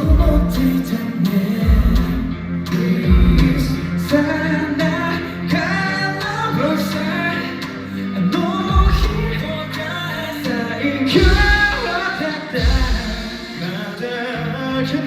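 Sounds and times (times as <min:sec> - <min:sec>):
person singing live: 0:00.0 - 0:15.0
pop backing with deep bass hits: 0:00.0 - 0:15.0.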